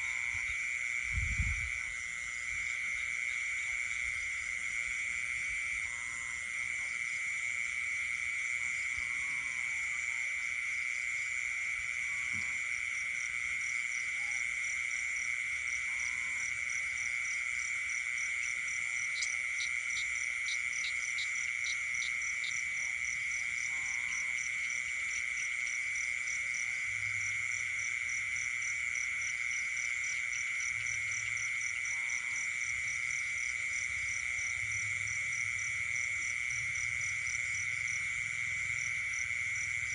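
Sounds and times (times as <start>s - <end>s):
frogs croaking: 0.0s - 39.9s
high-pitched insect drone: 0.0s - 39.9s.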